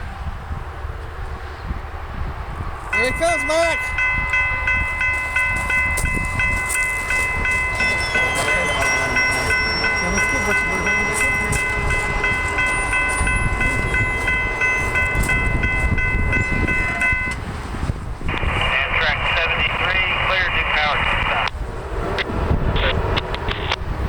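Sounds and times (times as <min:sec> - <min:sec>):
train passing at speed: 0:00.0 - 0:24.0
pulsing ringing tone: 0:02.9 - 0:17.4.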